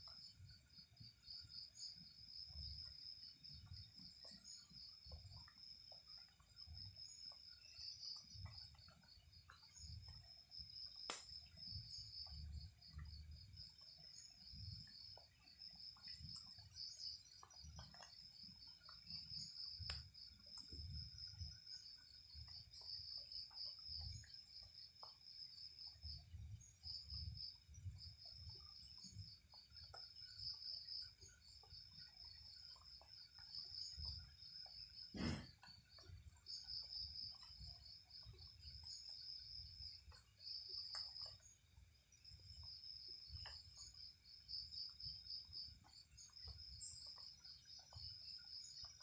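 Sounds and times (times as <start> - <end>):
insects trilling: 0.0 - 49.0.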